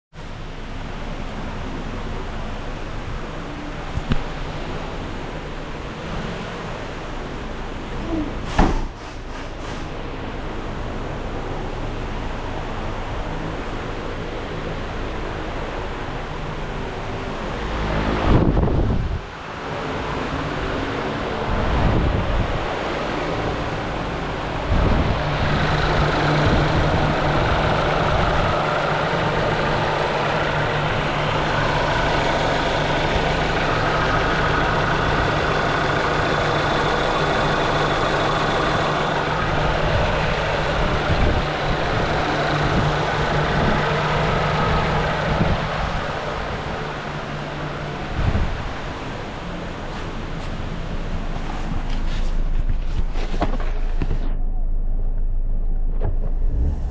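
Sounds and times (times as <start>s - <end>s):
wind on microphone: 18.2s - 19.3s, 24.6s - 28.6s, 39.5s - 43.8s, 55.9s - 56.9s
car engine idling: 19.8s - 56.9s.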